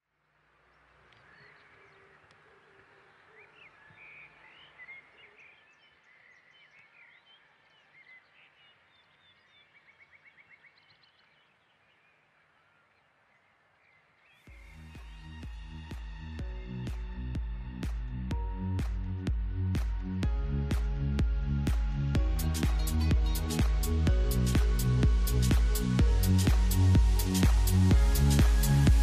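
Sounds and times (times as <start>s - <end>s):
birds chirping and whistling: 1.2s - 12.2s.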